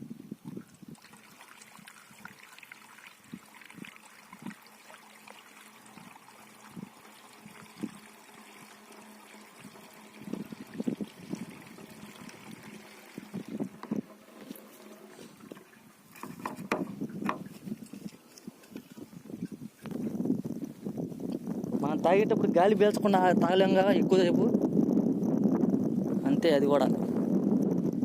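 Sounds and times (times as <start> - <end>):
low water splashes: 0.4 - 20.1
water trickling hiss: 0.4 - 21.8.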